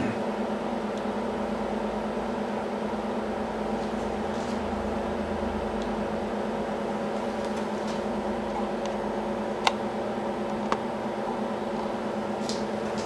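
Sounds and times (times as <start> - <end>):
lathe motor hum: 0.0 - 13.0.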